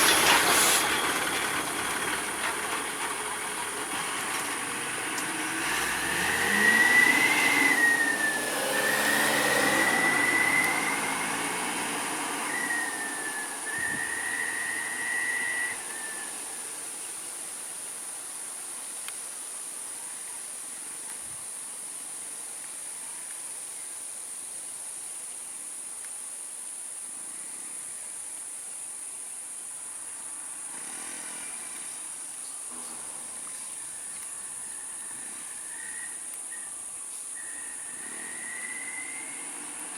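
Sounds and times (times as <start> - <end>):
vehicle passing with whine: 0.0 - 17.4, 30.7 - 34.0, 37.4 - 39.9.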